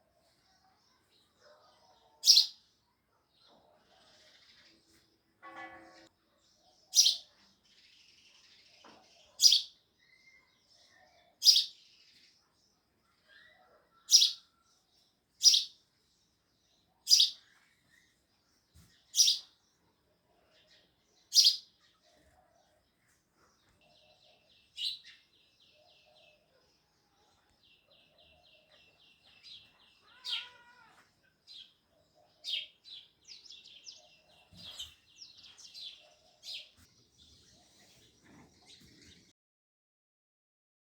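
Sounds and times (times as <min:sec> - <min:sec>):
sparrows chirping: 0:00.0 - 0:39.3.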